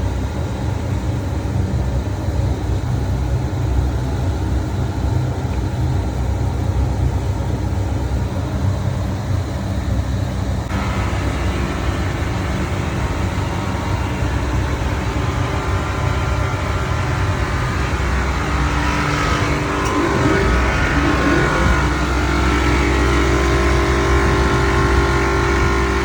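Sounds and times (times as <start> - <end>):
chiller machine humming: 10.2 - 26.0
whining tones: 10.7 - 26.0.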